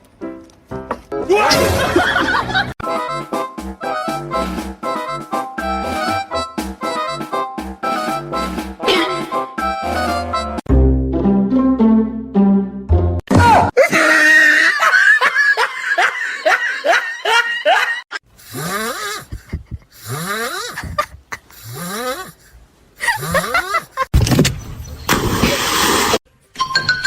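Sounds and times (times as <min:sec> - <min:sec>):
person laughing hard: 0:01.6 - 0:02.8, 0:13.8 - 0:24.1.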